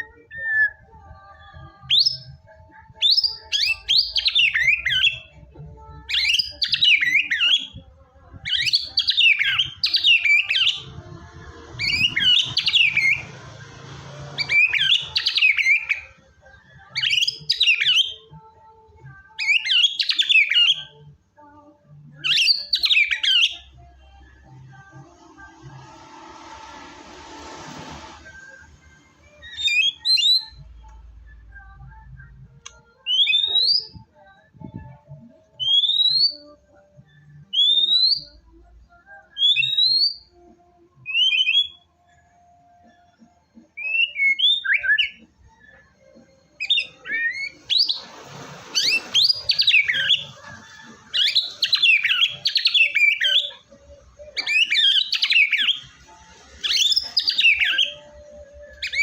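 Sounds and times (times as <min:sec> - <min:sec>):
bird singing clear whistles: 0:11.8 - 0:13.3, 0:46.6 - 0:50.4, 0:51.1 - 0:53.6, 0:54.3 - 0:55.9, 0:56.6 - 0:58.1.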